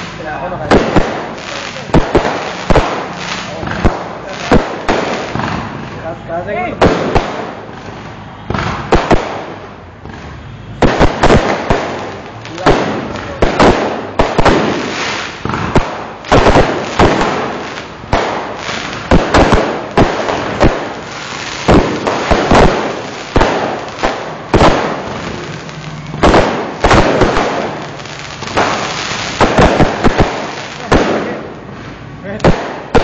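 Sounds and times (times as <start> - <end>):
fireworks bangs: 0.0 - 33.0.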